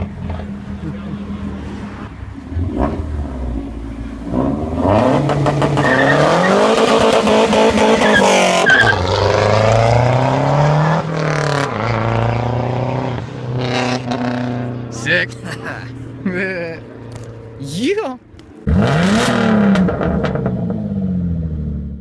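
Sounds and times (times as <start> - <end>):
car engine revving hard: 4.2 - 14.7, 18.7 - 21.5.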